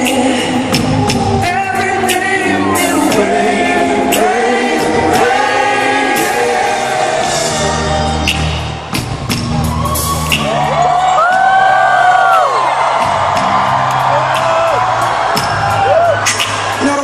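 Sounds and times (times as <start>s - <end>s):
man singing slow ballad: 0.0s - 3.3s
live band playing: 0.0s - 17.0s.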